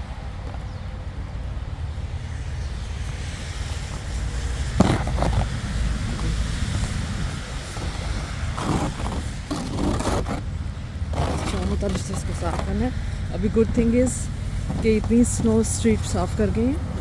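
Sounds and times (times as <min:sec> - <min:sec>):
low outdoor rumble: 0:00.0 - 0:17.0
snow scraped off a car: 0:03.2 - 0:12.8.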